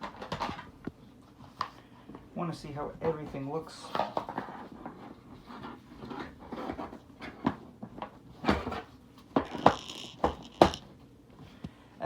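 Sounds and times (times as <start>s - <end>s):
plastic clicks and knocks: 9.4s - 10.9s.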